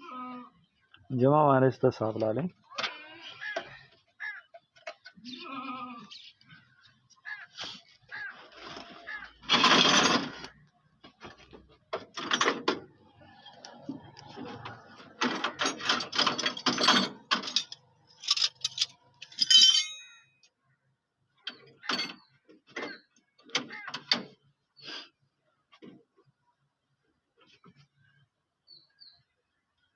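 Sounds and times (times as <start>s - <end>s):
metallic clicking of hand tools: 15.4s - 20.2s.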